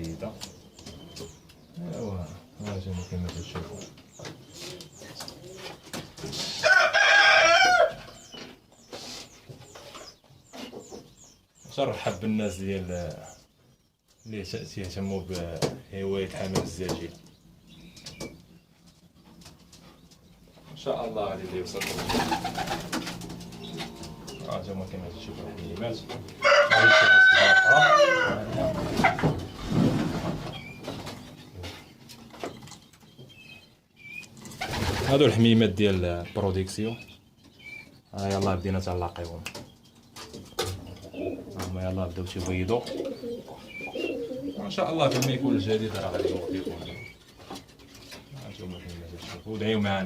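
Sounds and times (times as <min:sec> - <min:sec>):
small birds chirping: 0:00.0 - 0:50.0
rooster crowing: 0:06.6 - 0:08.1, 0:26.4 - 0:28.8.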